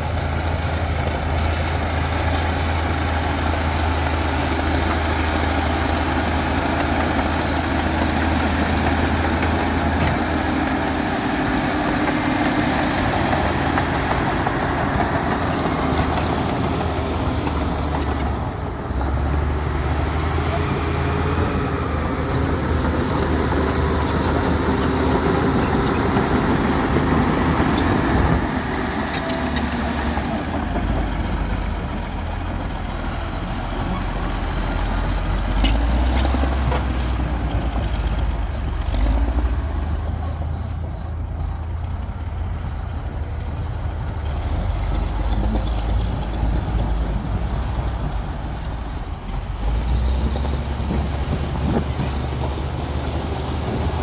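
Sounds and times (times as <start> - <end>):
bulldozer diesel engine running: 0.0 - 54.0
metal clanks from tracks: 23.6 - 31.8.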